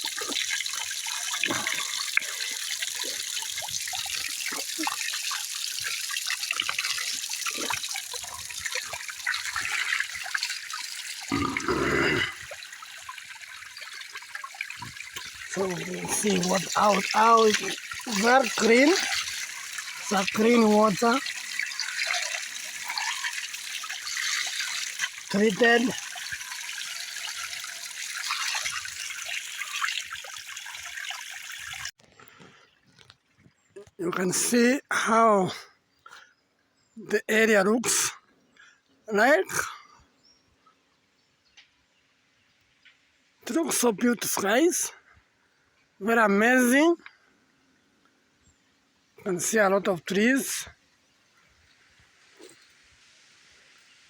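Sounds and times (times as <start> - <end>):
river water flowing: 0.0 - 31.9.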